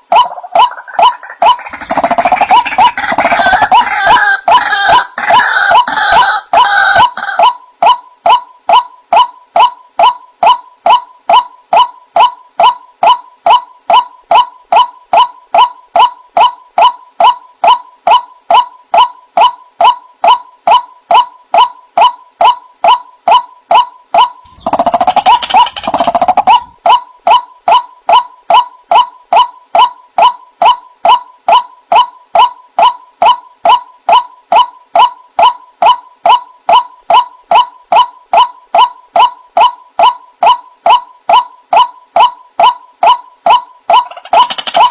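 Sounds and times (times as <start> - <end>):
waterhen calling: 0.2 - 7.5, 24.5 - 26.8
bird calling in sharp notes: 0.2 - 44.9.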